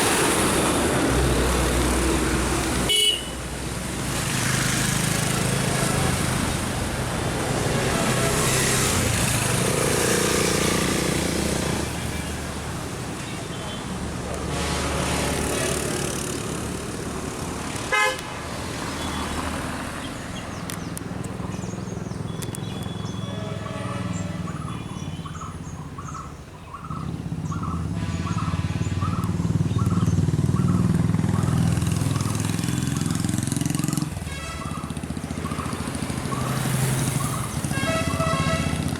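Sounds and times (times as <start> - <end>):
bus and car engines driving: 0.0 - 38.9
engine revving: 7.4 - 12.0.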